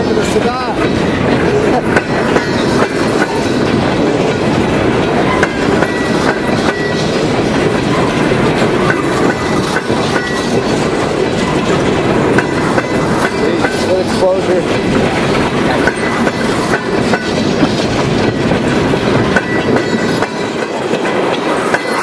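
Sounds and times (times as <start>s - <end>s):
freight train rumble and rattle: 0.0s - 22.0s
train wheels clicking on rail joints: 0.0s - 22.0s.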